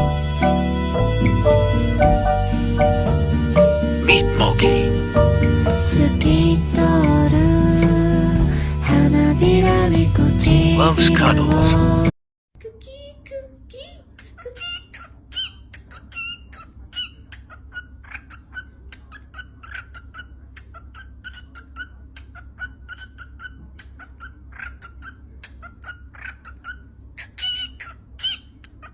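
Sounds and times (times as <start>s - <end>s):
low steady hum: 0.0s - 28.9s
pet bird chirping: 14.2s - 28.9s.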